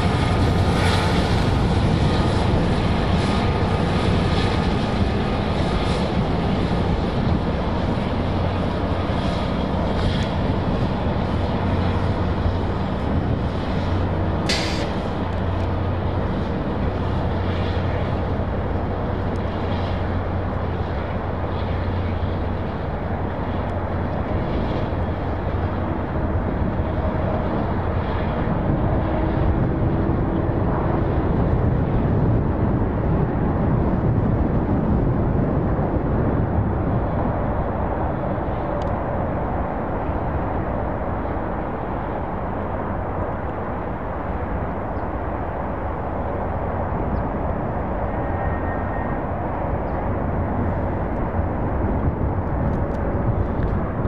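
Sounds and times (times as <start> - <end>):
train rumbling: 0.0 - 29.4
low engine hum: 0.0 - 54.0
sharp click: 14.5 - 15.0.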